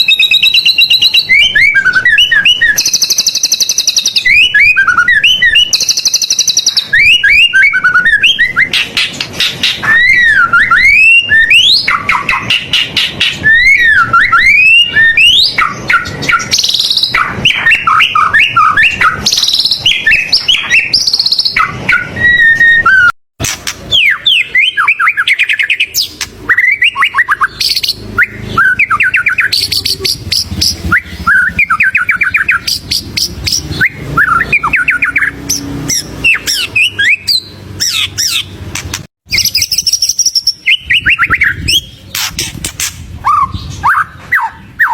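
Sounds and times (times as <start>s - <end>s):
bird singing whistles and trills: 0.0s - 23.2s, 23.9s - 44.9s.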